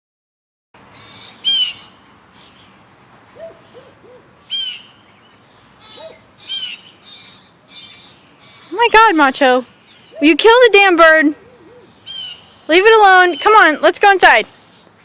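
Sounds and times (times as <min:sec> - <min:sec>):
bird distress squawks: 0:00.9 - 0:02.6, 0:03.4 - 0:05.0, 0:05.8 - 0:09.3, 0:09.9 - 0:10.4, 0:11.3 - 0:13.7
low hoot-like sounds: 0:11.4 - 0:11.9.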